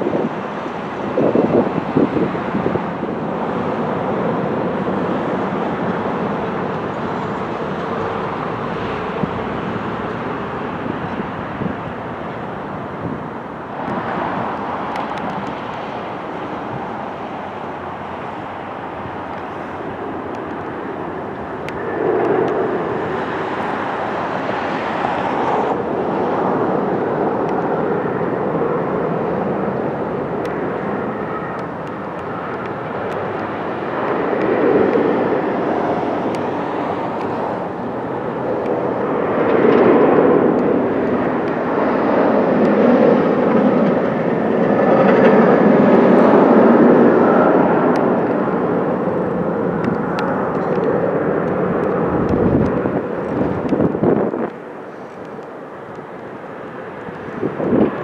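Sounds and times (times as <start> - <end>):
steady rumbling of passing things: 0.0 - 58.0.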